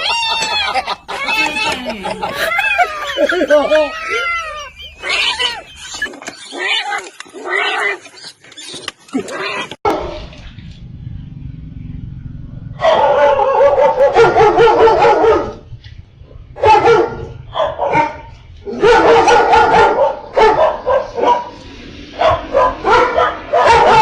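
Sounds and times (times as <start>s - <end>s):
dog barking and yelping: 0.0s - 8.2s, 12.8s - 15.6s, 16.6s - 24.0s.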